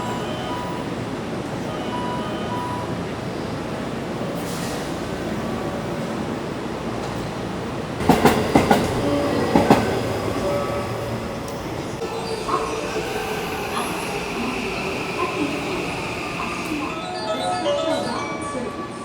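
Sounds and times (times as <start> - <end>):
train wheels rumbling on rails: 4.2 - 17.0
wheels clacking over rail joints: 8.0 - 17.0.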